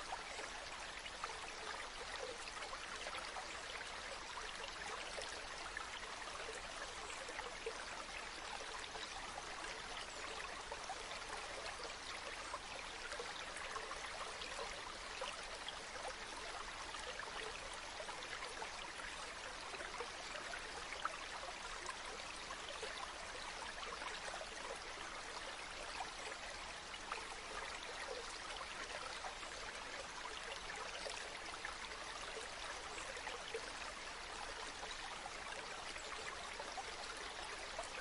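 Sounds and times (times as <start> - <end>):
stream flowing with splashes: 0.0 - 38.0.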